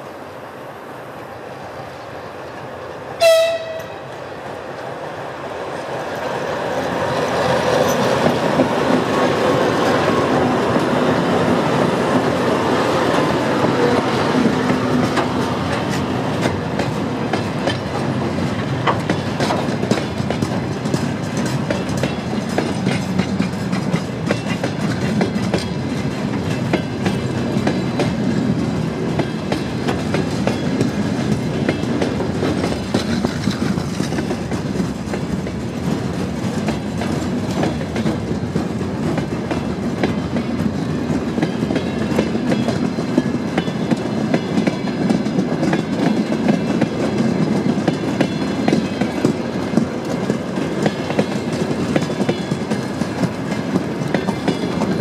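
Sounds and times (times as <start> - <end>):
diesel locomotive engines: 0.0 - 55.0
high train horn blast: 3.2 - 4.1
wheels clacking over rail joints: 3.4 - 55.0.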